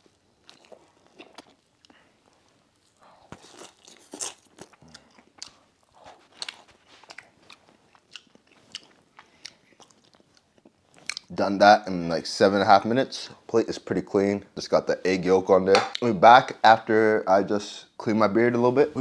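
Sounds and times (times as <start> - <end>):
person chewing sandwich: 0.0 - 11.3
mouth clicks and smacks: 6.3 - 11.3.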